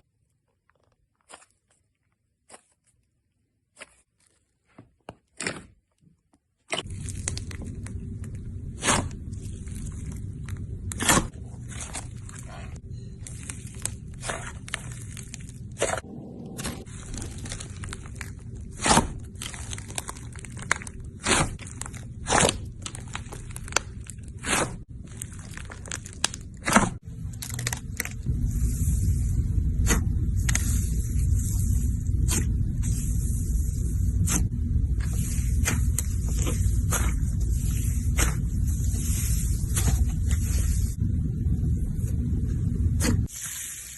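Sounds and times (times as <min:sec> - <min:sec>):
steady low rumble: 0:06.8 - 0:43.3
slime crunchy pops and crackles: 0:16.9 - 0:28.3.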